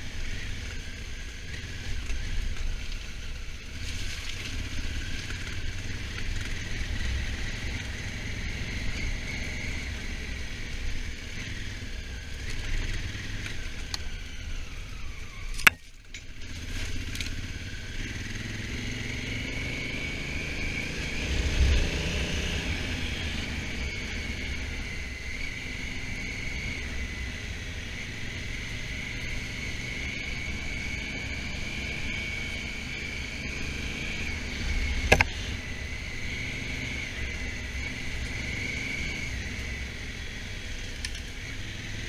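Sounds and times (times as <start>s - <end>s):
motorcycle engine rumble: 0.0s - 42.0s
wind and road noise: 0.0s - 42.0s.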